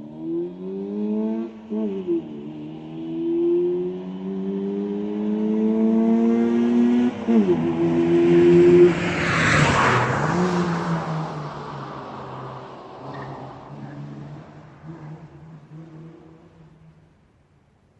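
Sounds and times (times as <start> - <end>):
car passing by loudly: 0.0 - 17.0
car engine revving: 0.0 - 17.4.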